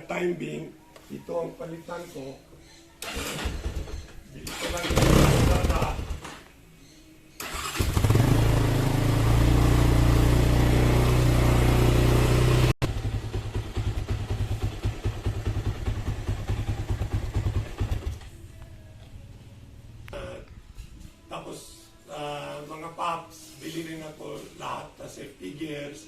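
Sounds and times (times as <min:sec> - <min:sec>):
motorcycle engine starting and idling: 0:03.0 - 0:06.5, 0:07.4 - 0:20.9.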